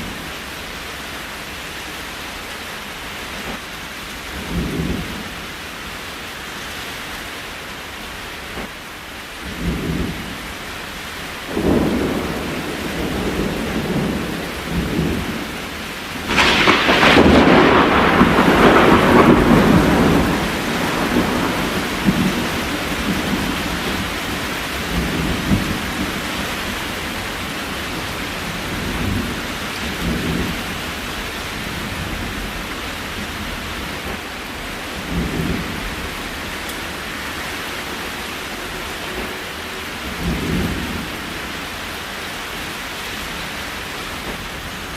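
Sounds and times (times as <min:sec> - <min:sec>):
steady rain: 0:00.0 - 0:44.9
thunder rolling: 0:11.5 - 0:41.6.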